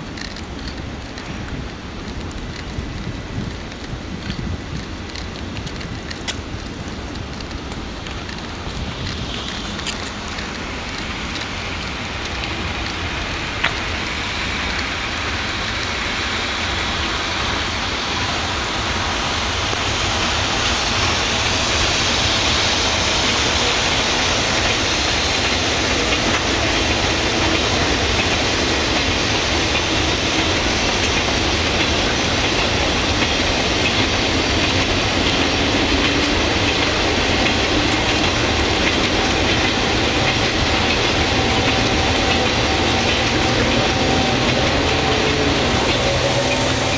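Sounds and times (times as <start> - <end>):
freight train rolling on tracks: 0.0 - 46.9.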